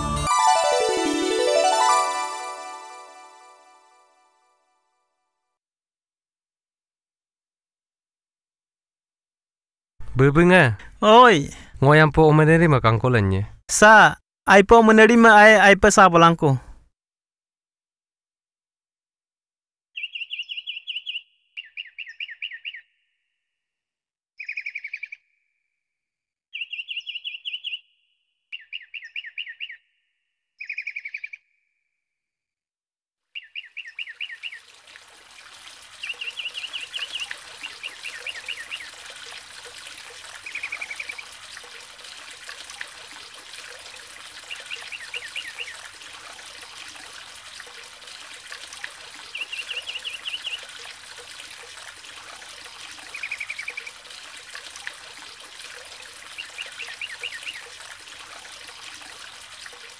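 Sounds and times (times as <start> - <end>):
bird chirping: 20.0 - 23.0, 24.4 - 25.2, 26.5 - 29.9, 30.6 - 31.5, 33.4 - 34.6
flowing mountain stream: 33.6 - 59.9.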